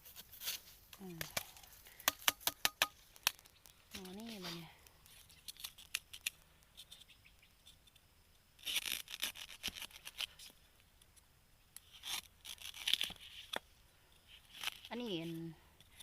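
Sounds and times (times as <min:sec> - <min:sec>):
bamboo stems snapping: 0:00.9 - 0:04.4, 0:05.0 - 0:06.4
dry bamboo leaves rustling: 0:03.0 - 0:06.4.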